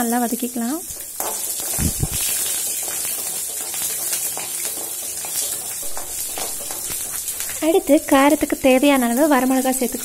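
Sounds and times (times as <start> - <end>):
food sizzling in hot oil: 0.0 - 10.0
wooden spatula scraping a pan: 0.9 - 7.7.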